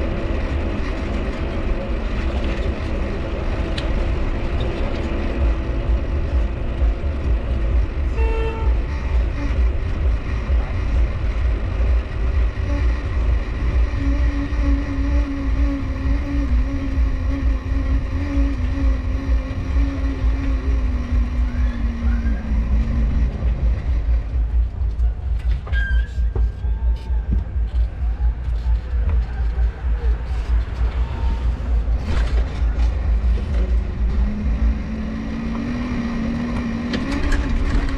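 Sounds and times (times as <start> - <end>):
bicycle dynamo humming: 0.0 - 37.9
steady low rumble: 0.0 - 37.9
bicycle crank squeak: 25.6 - 26.7.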